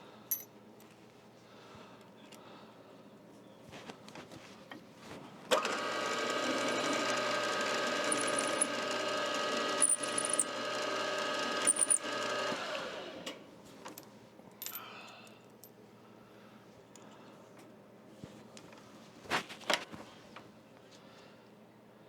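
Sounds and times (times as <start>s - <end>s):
electric motor whining: 5.6s - 13.2s.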